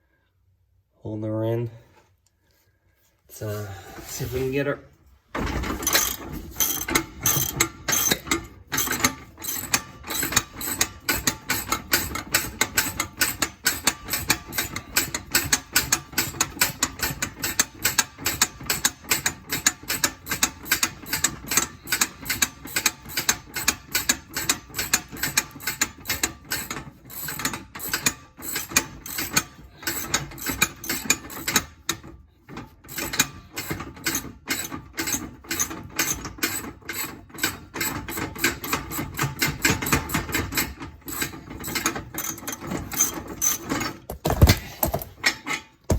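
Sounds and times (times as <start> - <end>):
ratchet wrench clicking: 5.8 - 31.6.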